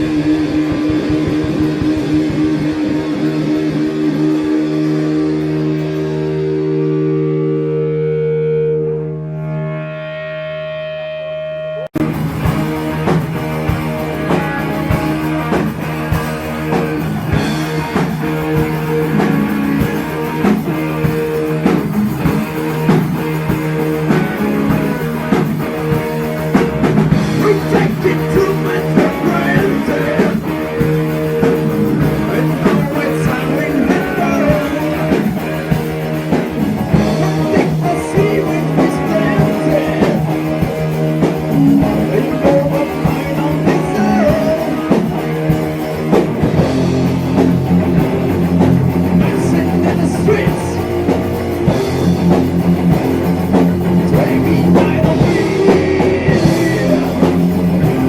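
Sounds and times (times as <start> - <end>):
drum kit: 0.0 - 7.9, 12.0 - 58.0
heavy metal band playing: 0.0 - 58.0.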